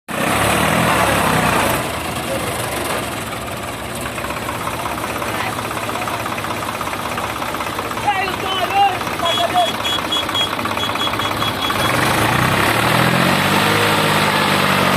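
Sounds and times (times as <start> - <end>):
diesel engine running: 0.1 - 14.9.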